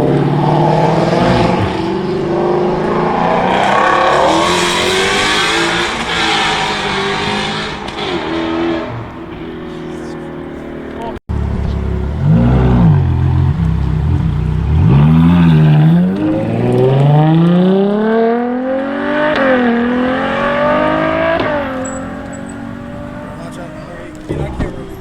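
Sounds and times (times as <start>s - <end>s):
car engine accelerating hard: 0.0s - 25.0s.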